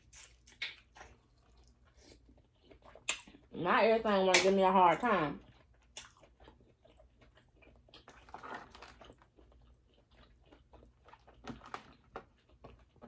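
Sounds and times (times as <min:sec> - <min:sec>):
person chewing seafood: 0:00.0 - 0:03.5, 0:05.4 - 0:13.0
wet mouth clicks: 0:03.0 - 0:03.4.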